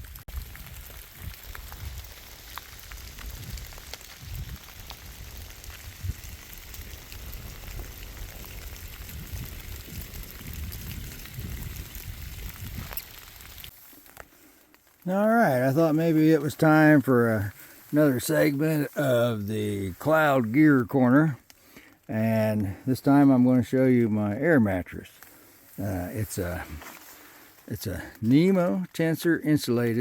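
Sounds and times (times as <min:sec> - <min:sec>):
drizzle drops ticking: 0:00.3 - 0:30.0.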